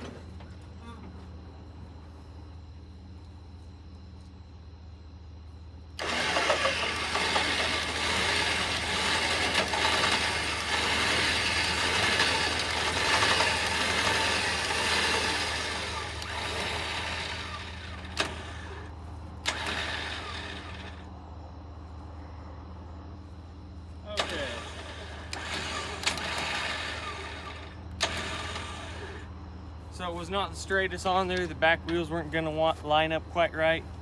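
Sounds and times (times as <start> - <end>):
steady low hum: 0.0 - 34.0
vehicle engine running: 0.0 - 34.0
sharp clicks: 24.2 - 26.8.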